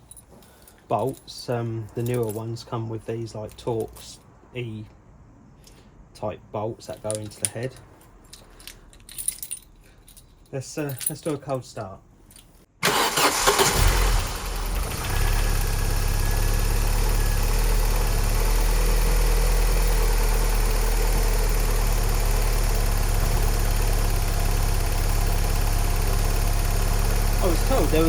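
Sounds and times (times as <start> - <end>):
car engine starting and idling: 12.8 - 28.0
starter motor cranking: 12.8 - 28.0.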